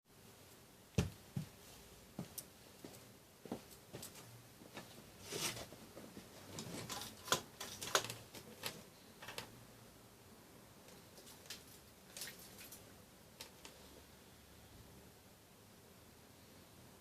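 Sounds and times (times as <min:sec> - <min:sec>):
faint room noise: 0:00.0 - 0:17.0.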